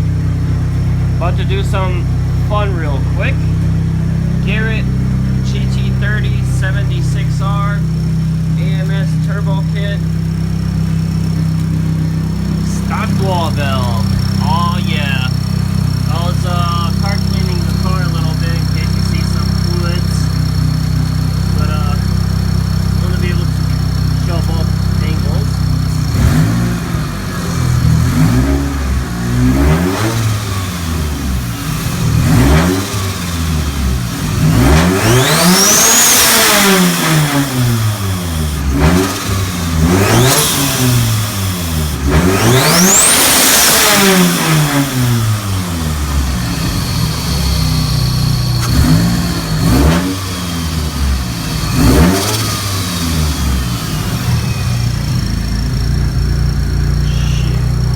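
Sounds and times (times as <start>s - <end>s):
car engine revving: 0.0s - 57.9s
turbo whistle: 57.0s - 57.9s.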